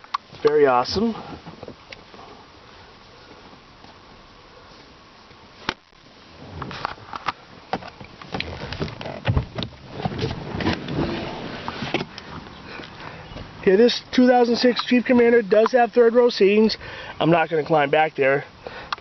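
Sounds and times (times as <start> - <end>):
rustling: 0.0 - 13.6.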